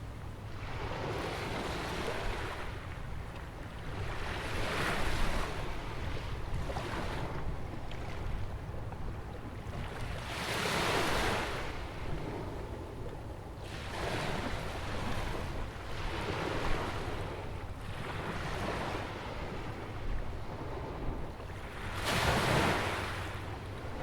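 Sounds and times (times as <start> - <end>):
wind rumble on microphone: 0.0 - 24.0
ocean waves breaking: 9.4 - 24.0.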